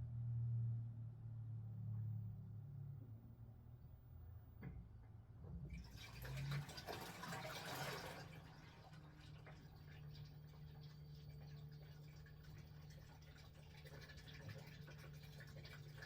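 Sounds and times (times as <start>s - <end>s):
washing machine hum: 3.1s - 16.0s
water rushing in washing machine drum: 5.7s - 16.0s.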